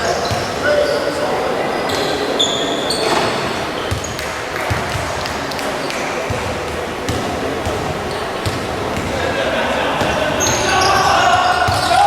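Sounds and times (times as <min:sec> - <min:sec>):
shoes squeaking on gym floor: 0:01.8 - 0:04.3
basketball bouncing: 0:03.9 - 0:05.4, 0:06.3 - 0:09.2.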